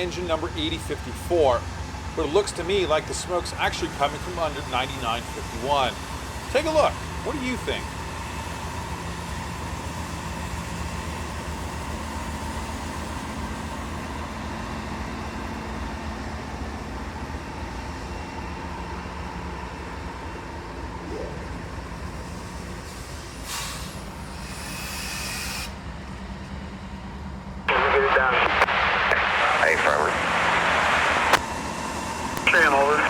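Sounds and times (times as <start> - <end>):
diesel locomotives idling: 0.0 - 33.0.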